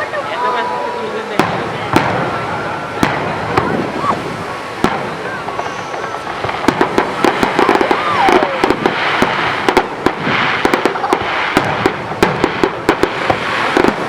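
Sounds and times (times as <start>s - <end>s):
fireworks bangs and crackling: 0.0s - 14.0s
firework falling whistle: 2.0s - 11.9s.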